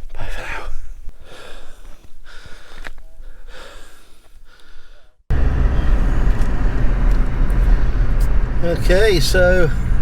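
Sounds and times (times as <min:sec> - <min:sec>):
person breathing hard: 0:00.4 - 0:05.2
car engine and road noise: 0:05.3 - 0:10.0.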